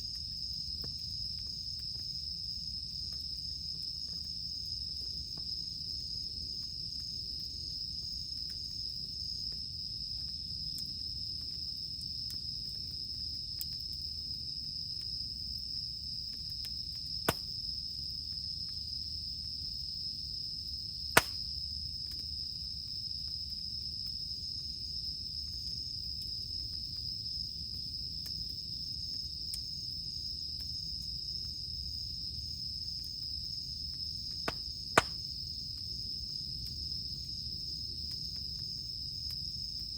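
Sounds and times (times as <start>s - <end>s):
cicadas droning: 0.0s - 39.9s
burning wood popping: 21.2s - 21.5s.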